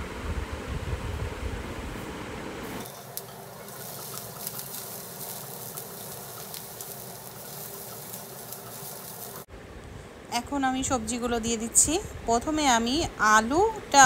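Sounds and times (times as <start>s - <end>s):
vegetables sizzling in oil: 2.7s - 9.5s
spatula stirring in a pan: 2.8s - 9.5s.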